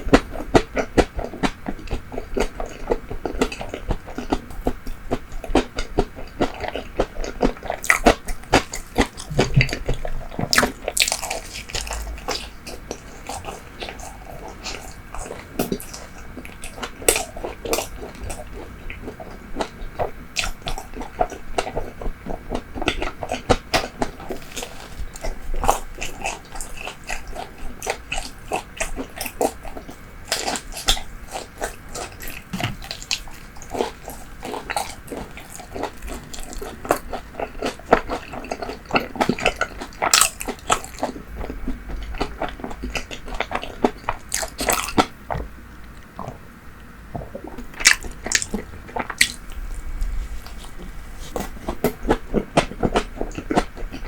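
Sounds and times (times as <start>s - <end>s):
moist chewing: 0.0s - 46.4s, 47.1s - 54.0s
crunchy bites: 5.5s - 18.4s, 22.5s - 46.4s, 47.8s - 54.0s.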